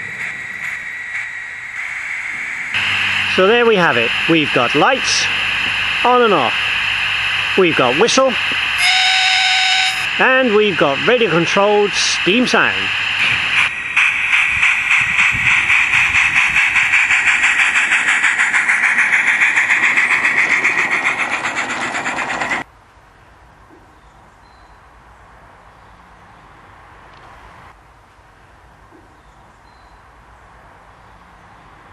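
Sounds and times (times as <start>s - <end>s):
simulated steam exhaust chuff: 0.0s - 22.7s.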